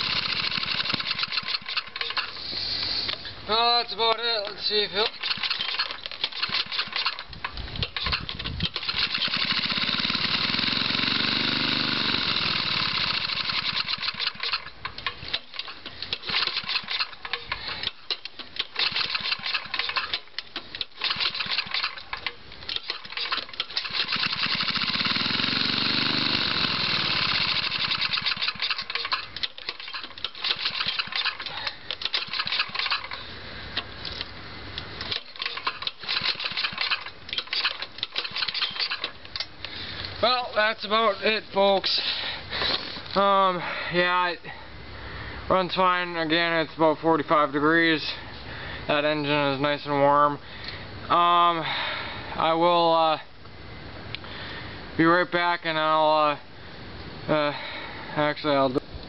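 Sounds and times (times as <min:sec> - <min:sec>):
small engine running unevenly: 0:00.0 - 0:03.2, 0:05.0 - 0:34.3, 0:35.0 - 0:40.5.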